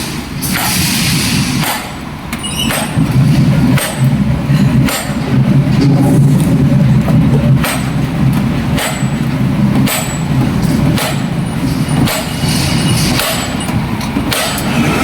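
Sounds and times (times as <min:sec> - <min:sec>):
engine rumbling: 0:00.0 - 0:15.0
sharp metal knocks: 0:02.6 - 0:03.1, 0:03.7 - 0:04.1, 0:08.7 - 0:12.4, 0:13.0 - 0:14.7.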